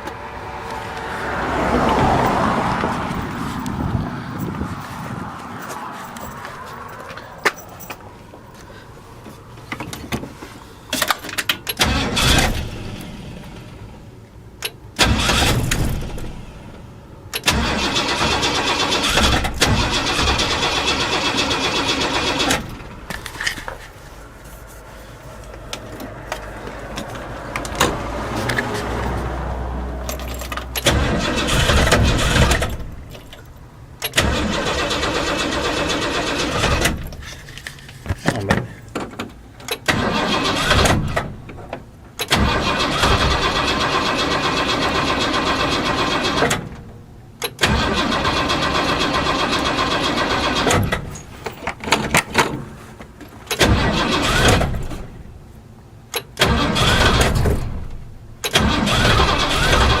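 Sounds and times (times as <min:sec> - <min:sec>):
engine cranking and starting: 0:10.9 - 0:24.0, 0:30.0 - 0:37.8, 0:39.6 - 0:52.8, 0:53.4 - 0:55.4, 0:56.1 - 1:00.0.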